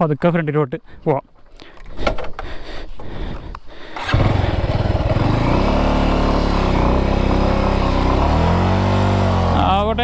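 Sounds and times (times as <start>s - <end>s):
motorcycle engine at low revs: 4.0s - 10.0s.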